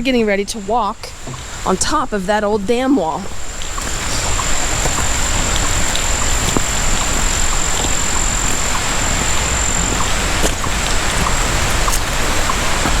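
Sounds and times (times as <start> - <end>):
creek water rushing: 0.0 - 13.0
faint chirps: 3.2 - 12.9.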